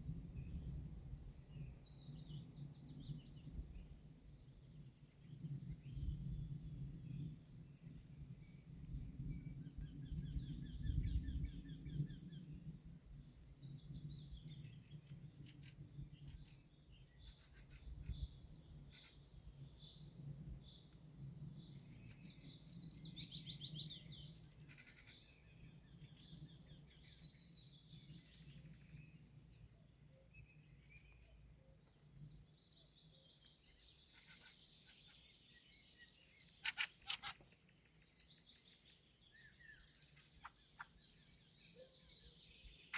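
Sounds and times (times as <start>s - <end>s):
songbirds singing and calling: 0.0s - 42.9s
sharp clicks: 36.6s - 37.6s.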